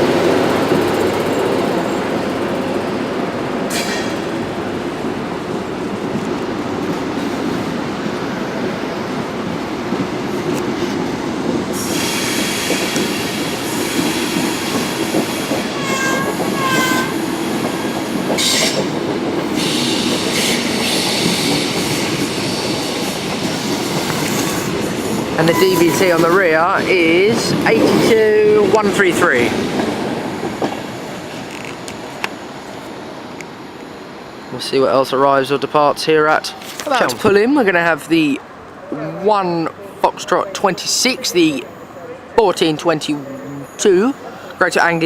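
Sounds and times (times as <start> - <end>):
train rolling past on rails: 0.0 - 45.0
wheels squealing: 23.5 - 26.7.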